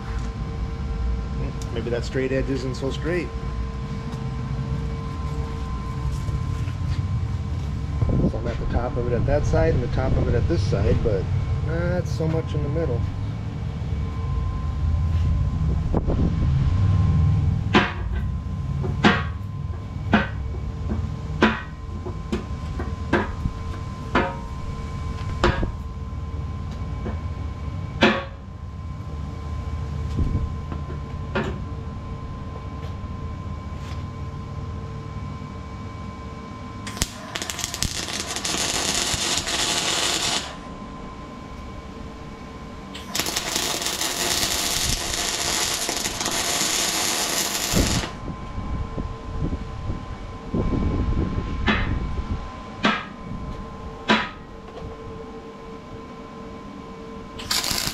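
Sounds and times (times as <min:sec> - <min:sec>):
low steady rumble: 0:00.0 - 0:57.9
loud steady hiss: 0:36.9 - 0:40.6, 0:43.0 - 0:48.2.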